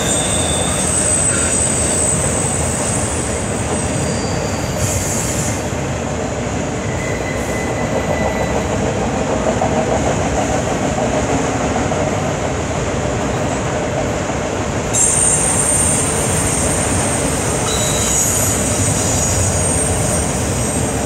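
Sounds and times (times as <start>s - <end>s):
faint high wheel squeal: 0.0s - 5.7s, 6.8s - 8.7s, 14.9s - 21.0s
steel wheels rumbling on rail: 0.0s - 21.0s.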